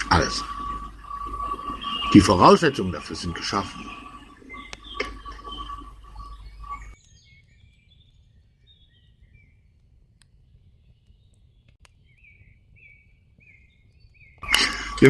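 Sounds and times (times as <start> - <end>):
low mains hum: 0.0 - 7.0, 13.5 - 15.0
birds chirping: 0.0 - 15.0.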